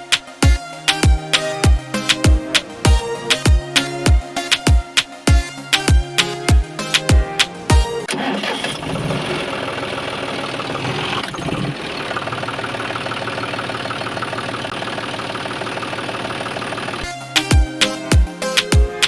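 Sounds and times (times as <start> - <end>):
small engine pulsing: 8.1 - 17.1.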